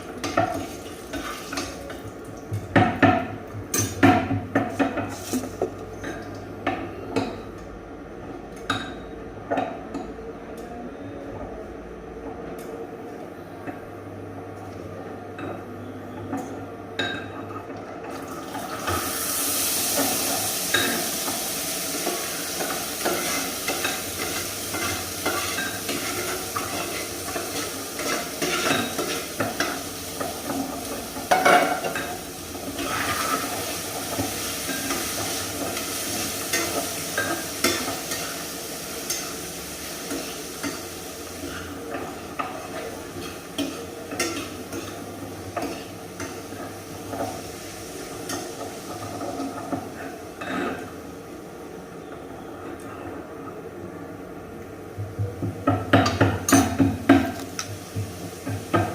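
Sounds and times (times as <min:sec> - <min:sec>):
food sizzling in a pan: 0:00.0 - 0:01.9, 0:18.2 - 0:51.6, 0:56.0 - 0:58.9.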